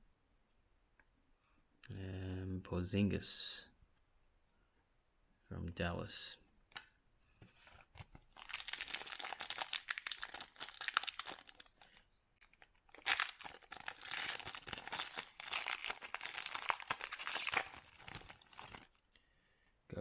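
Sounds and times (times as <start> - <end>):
foil wrapper crinkling: 7.8 - 19.0.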